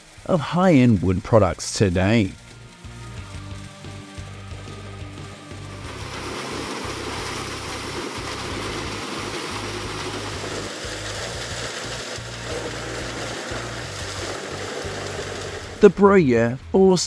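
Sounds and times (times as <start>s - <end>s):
background music with bass beat: 2.4s - 14.2s
wood shredder engine rushing: 5.6s - 16.0s.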